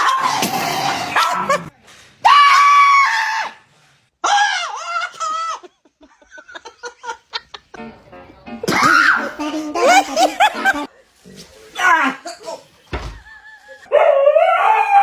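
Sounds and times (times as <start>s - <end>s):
short chuckle-like bursts: 9.2s - 10.9s.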